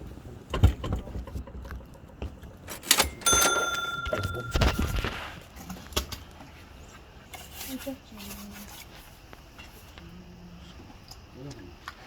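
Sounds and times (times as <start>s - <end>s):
rustling handling noise: 2.7s - 5.9s
bright metallic ring: 2.9s - 5.3s.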